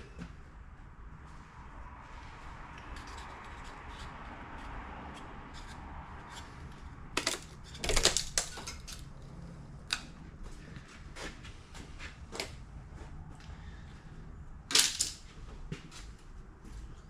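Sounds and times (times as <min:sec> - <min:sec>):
steady background noise: 0:00.0 - 0:17.0
metal tools clanking: 0:07.2 - 0:09.1.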